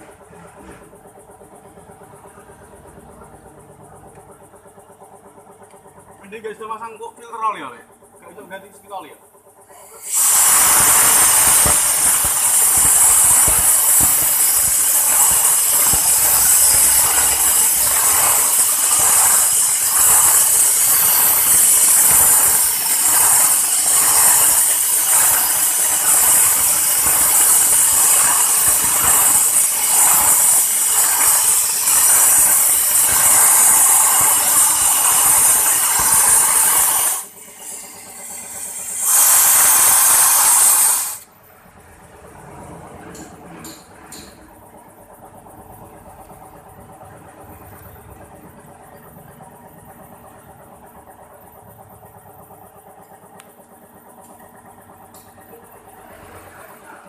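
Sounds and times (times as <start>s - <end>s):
pressurized air hissing: 9.7s - 41.3s.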